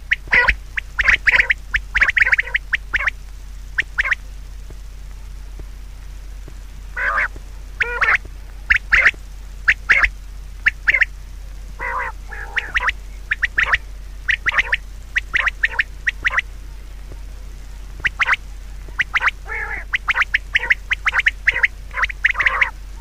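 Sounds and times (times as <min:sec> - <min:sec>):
short bird calls: 0:00.0 - 0:03.2, 0:03.8 - 0:04.2, 0:06.9 - 0:11.2, 0:11.8 - 0:16.5, 0:17.9 - 0:23.0
steady low hum: 0:00.0 - 0:23.0.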